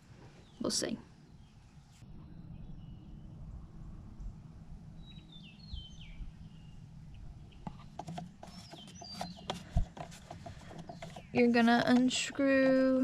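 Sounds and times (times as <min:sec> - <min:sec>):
low background rumble: 0:00.0 - 0:08.5
small birds chirping: 0:05.0 - 0:13.0
light clicks and knocks: 0:07.6 - 0:13.0.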